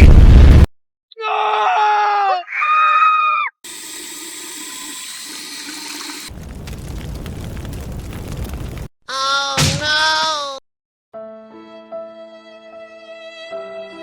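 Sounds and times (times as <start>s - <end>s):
high voice-like cries: 1.2s - 3.6s
water running: 3.7s - 6.8s.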